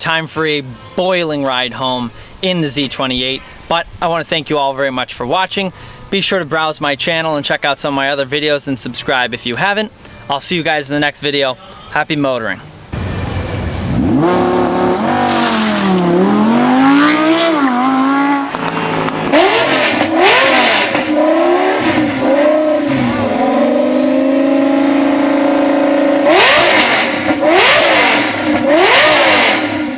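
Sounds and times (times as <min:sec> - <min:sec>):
car engine revving: 0:12.7 - 0:29.9.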